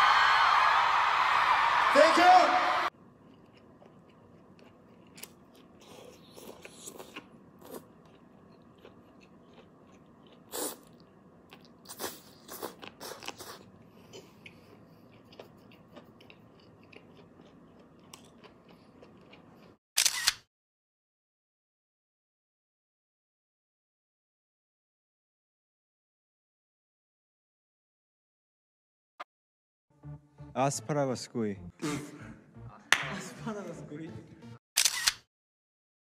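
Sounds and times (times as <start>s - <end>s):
crisp bites and chewing: 3.3s - 13.6s.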